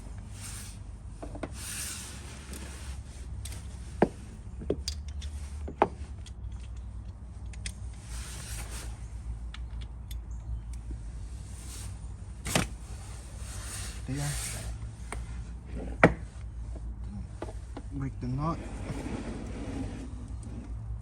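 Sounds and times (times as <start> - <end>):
wrench rubbing and scraping: 0.0 - 9.2, 12.8 - 16.8
steady low hum: 0.0 - 21.0.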